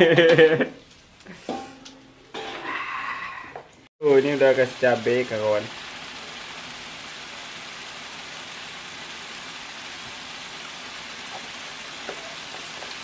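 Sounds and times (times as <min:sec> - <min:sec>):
chili paste sizzling in oil: 0:04.0 - 0:13.0.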